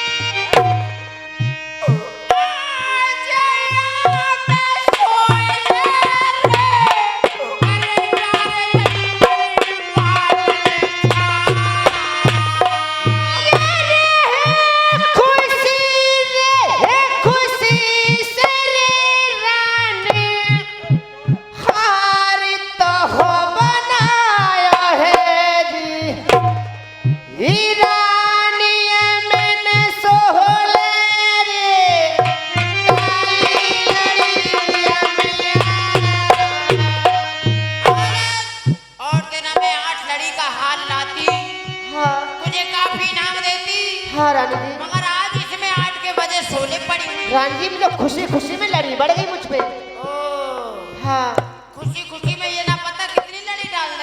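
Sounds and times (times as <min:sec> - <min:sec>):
rapid hand drum strokes: 0:31.7 - 0:39.5.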